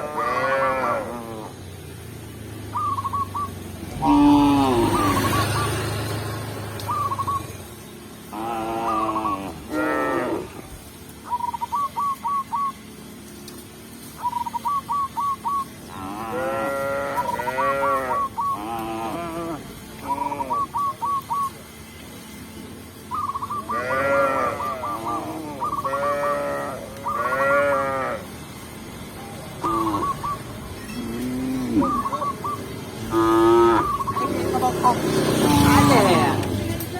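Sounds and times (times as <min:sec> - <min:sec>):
cows mooing: 0:00.0 - 0:01.7, 0:03.9 - 0:06.8, 0:08.3 - 0:10.8, 0:15.8 - 0:20.7, 0:23.5 - 0:28.7, 0:29.6 - 0:36.6.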